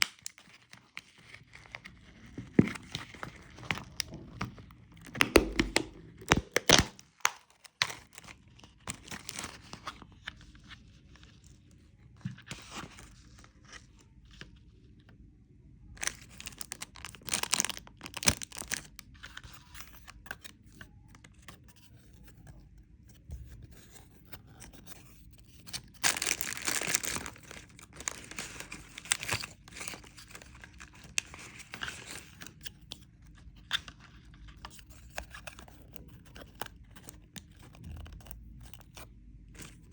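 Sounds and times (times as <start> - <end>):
candy packaging crinkling: 5.0 - 10.0, 16.0 - 20.6, 24.6 - 33.0.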